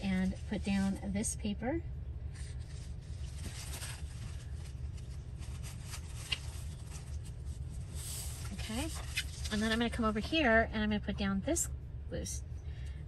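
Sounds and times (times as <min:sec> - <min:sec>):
steady low hum: 0:00.0 - 0:13.0
paper rustling and sliding: 0:02.4 - 0:09.8.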